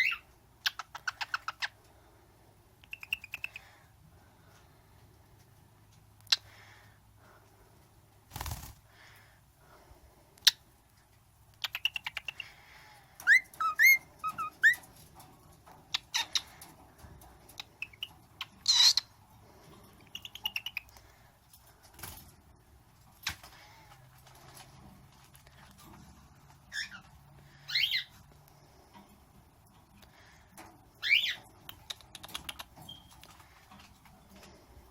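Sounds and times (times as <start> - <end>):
cockatiel clicks and smacks: 31.6 - 33.4.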